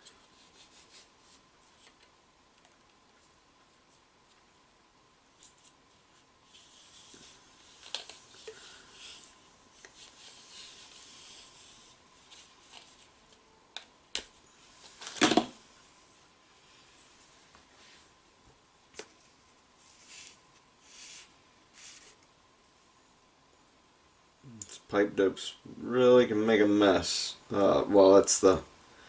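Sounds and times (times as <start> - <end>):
thread tape scratchy rubbing: 5.3 - 13.4.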